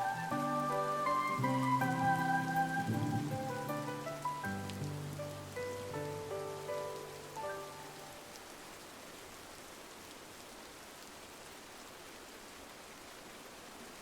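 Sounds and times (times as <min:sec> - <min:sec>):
soft held musical notes: 0:00.0 - 0:08.3
rain against a window: 0:00.0 - 0:14.0.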